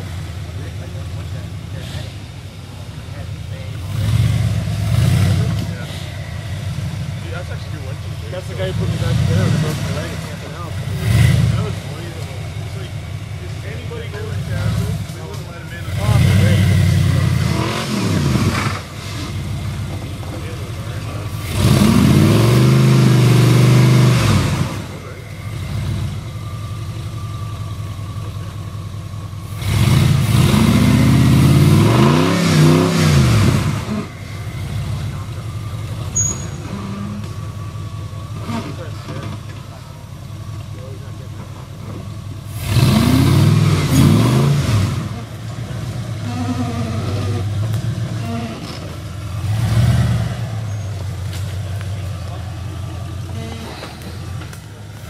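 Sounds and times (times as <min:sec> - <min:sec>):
truck engine revving: 0:00.0 - 0:55.0.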